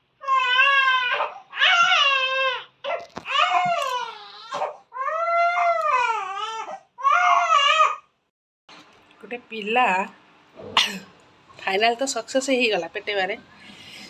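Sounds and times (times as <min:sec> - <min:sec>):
baby crying: 0:00.2 - 0:08.1.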